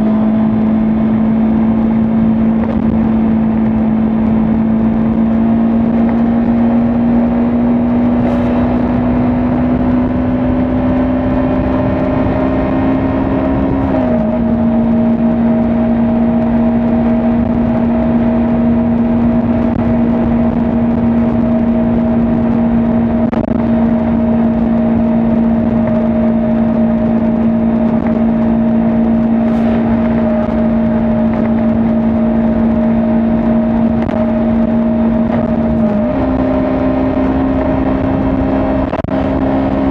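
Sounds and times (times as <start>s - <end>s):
motorcycle engine at high revs: 0.0s - 39.9s
wind and road noise: 0.0s - 39.9s.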